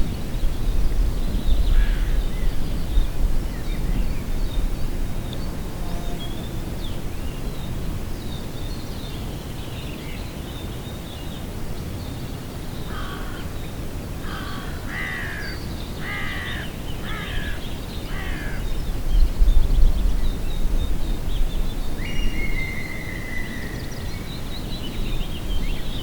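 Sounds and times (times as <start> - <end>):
bird harsh calls: 14.2 - 18.7.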